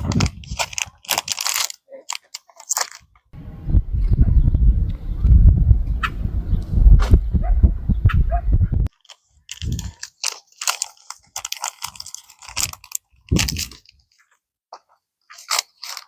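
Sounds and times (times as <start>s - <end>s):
low wind rumble on microphone: 0.0s - 0.8s, 3.4s - 8.9s, 13.3s - 13.8s
chewing and crunching food: 0.0s - 3.4s, 8.8s - 16.0s.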